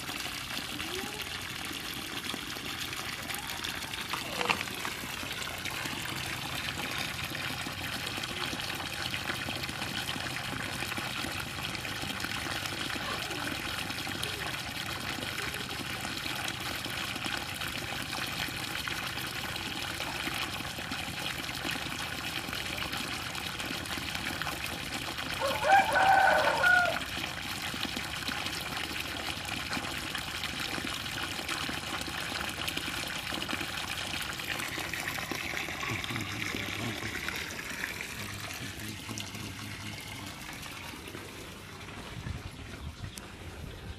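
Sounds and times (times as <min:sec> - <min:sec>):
water gushing from pipe: 0:00.0 - 0:43.9
rooster crowing: 0:25.4 - 0:27.1.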